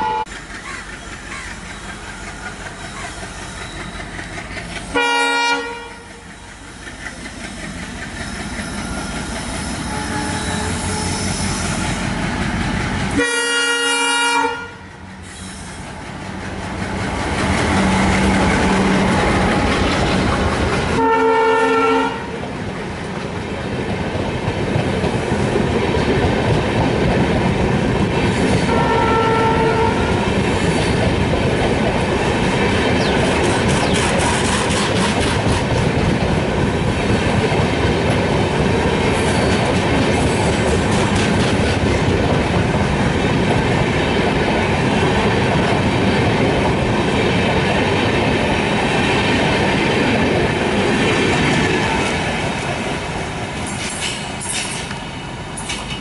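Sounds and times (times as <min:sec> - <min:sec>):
train horn: 0:00.0 - 0:00.3, 0:04.9 - 0:06.2, 0:09.8 - 0:11.8, 0:13.1 - 0:15.0, 0:21.0 - 0:22.4, 0:28.6 - 0:30.3
train coaches rumbling past: 0:00.0 - 0:56.0
wheels clattering over rail joints: 0:30.4 - 0:56.0.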